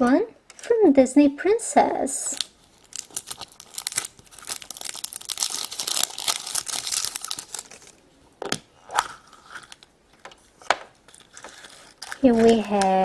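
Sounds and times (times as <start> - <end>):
crinkly wrapper tearing: 2.3 - 8.0, 9.0 - 13.0.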